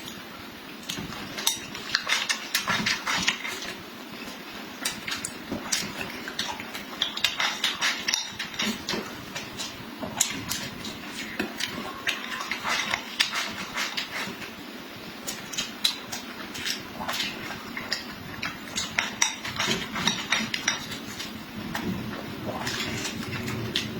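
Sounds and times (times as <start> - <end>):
utensils clinking on a dish: 5.0 - 14.3, 15.5 - 21.3
wet chewing and lip smacks: 15.2 - 21.9.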